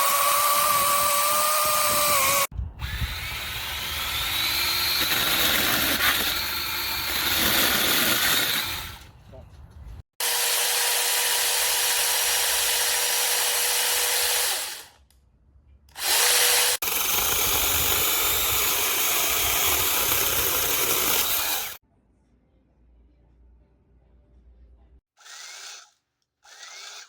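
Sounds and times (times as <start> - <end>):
electric chainsaw whining: 0.0 - 9.0, 10.2 - 15.0, 16.0 - 21.8.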